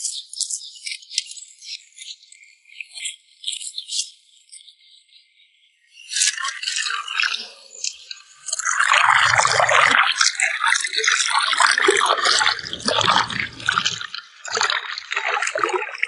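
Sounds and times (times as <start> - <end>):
water splashing and trickling: 8.6 - 16.0.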